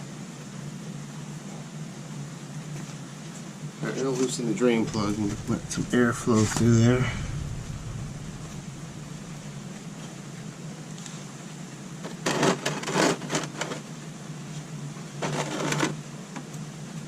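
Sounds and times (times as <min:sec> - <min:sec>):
low steady hum: 0:00.0 - 0:12.1.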